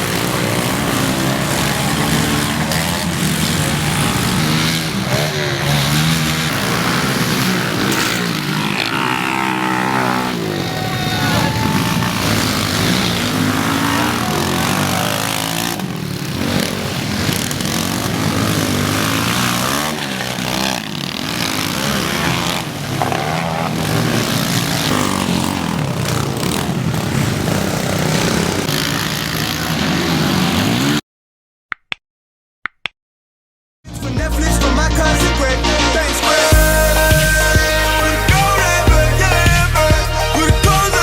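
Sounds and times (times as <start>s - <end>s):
pit bike engines revving: 0.0s - 31.0s, 34.4s - 41.0s.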